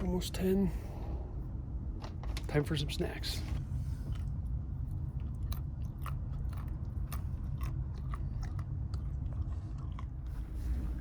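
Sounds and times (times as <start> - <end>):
steady low hum: 0.0 - 11.0
person crunching a snack: 5.0 - 10.4.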